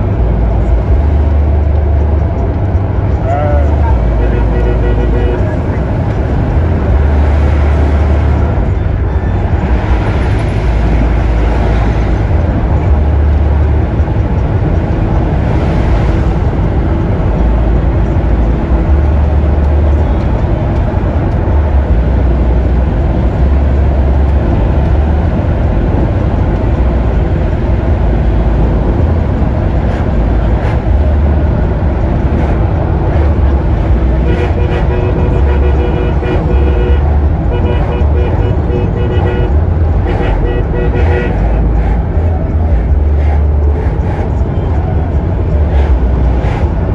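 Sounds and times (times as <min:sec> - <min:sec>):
road traffic rumble: 0:00.0 - 0:46.9
vehicle horn: 0:03.2 - 0:08.7, 0:34.0 - 0:42.0.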